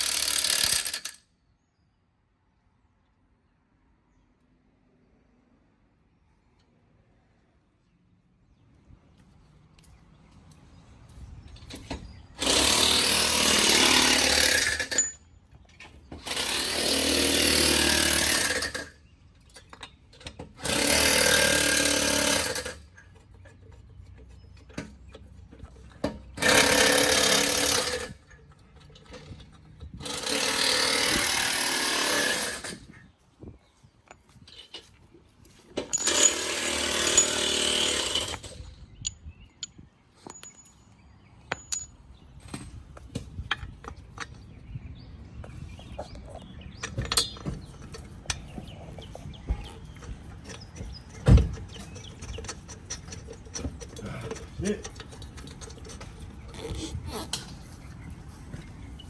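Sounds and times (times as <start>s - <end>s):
impact wrench driving lug nuts: 0.0s - 1.2s, 12.4s - 15.2s, 16.2s - 18.9s, 20.5s - 23.0s, 26.3s - 28.4s, 29.0s - 32.9s, 35.8s - 38.9s, 49.6s - 57.5s.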